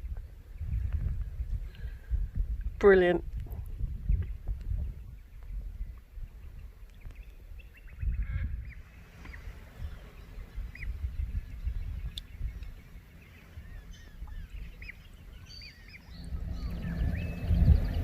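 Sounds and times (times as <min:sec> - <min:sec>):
birds calling: 0:04.0 - 0:18.0
low rumble: 0:09.8 - 0:18.0.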